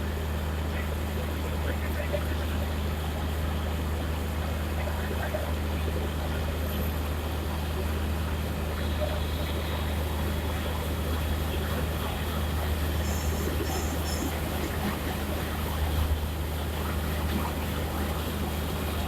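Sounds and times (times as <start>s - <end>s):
locomotive idling: 7.5s - 19.0s.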